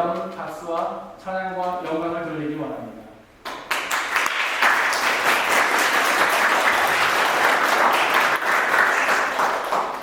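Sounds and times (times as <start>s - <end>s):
group of people applauding: 3.5s - 10.0s.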